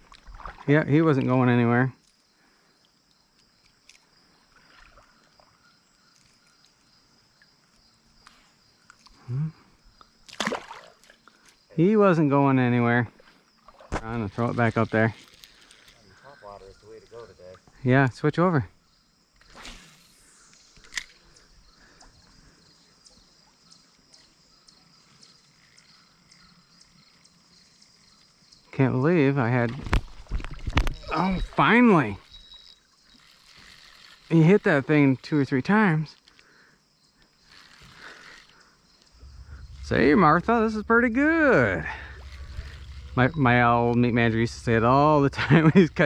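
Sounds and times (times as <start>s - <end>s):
soft regular ticks: 14.5s - 16.2s, 32.2s - 35.5s, 36.1s - 40.0s
high-pitched insect buzz: 18.8s - 28.7s, 30.0s - 35.7s, 36.5s - 46.0s.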